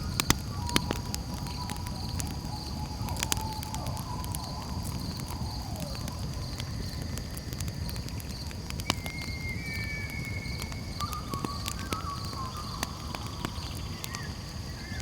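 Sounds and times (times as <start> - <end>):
campfire crackling and popping: 0.0 - 15.0
high insect trill: 0.0 - 15.0
thin whistling tone: 8.8 - 13.9.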